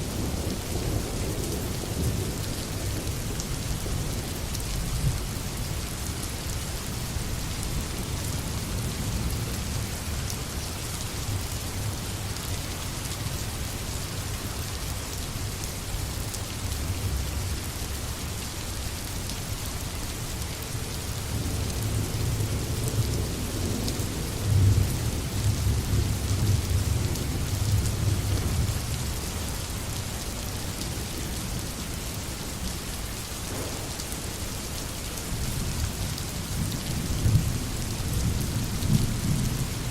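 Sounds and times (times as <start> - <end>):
steady rain falling: 0.0 - 39.9
low thunder rumble: 33.5 - 34.3.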